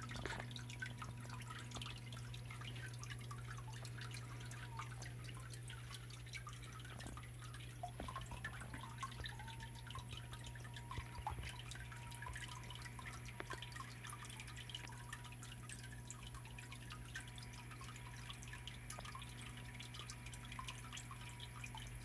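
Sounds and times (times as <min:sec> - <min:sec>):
waterfall trickling and splashing: 0:00.0 - 0:16.2
steady low hum: 0:00.0 - 0:22.0.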